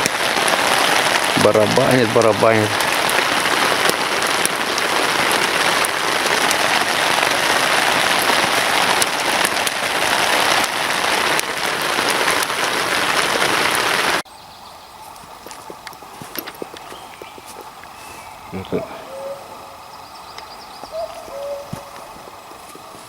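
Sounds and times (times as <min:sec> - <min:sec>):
heavy rain drumming: 0:00.0 - 0:14.2, 0:15.1 - 0:23.0.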